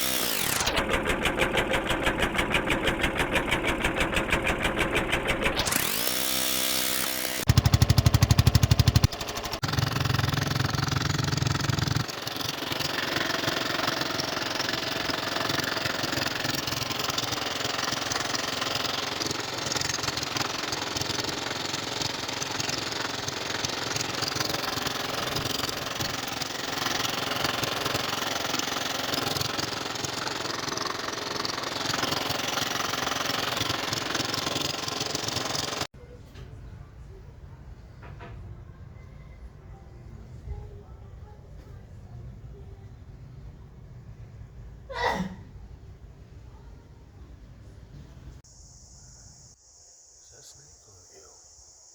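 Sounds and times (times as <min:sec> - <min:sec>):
small boat engine running: 0:00.0 - 0:35.9.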